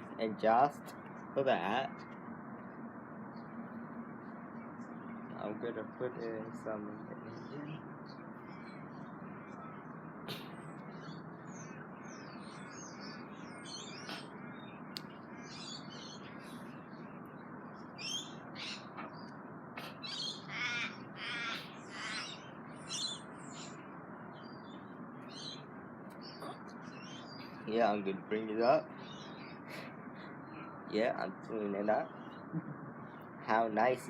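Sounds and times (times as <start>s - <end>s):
low background hum: 0.0s - 34.0s
crows cawing: 20.0s - 22.5s.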